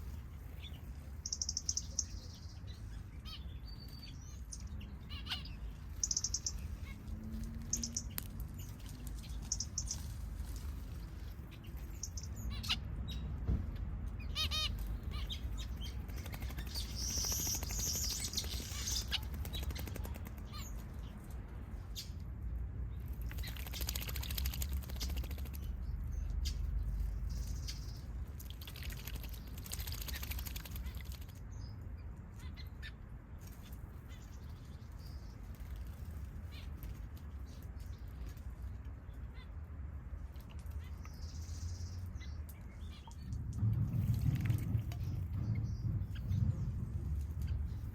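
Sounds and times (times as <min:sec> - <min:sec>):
small birds chirping: 0:00.0 - 0:22.3, 0:22.9 - 0:47.9
wings fluttering in water: 0:15.6 - 0:20.8, 0:23.1 - 0:25.8, 0:28.3 - 0:31.4.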